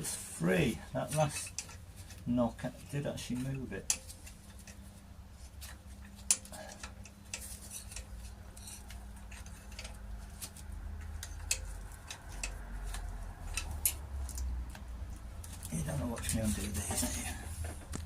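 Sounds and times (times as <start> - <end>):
hand tools clinking on metal: 1.0 - 1.8.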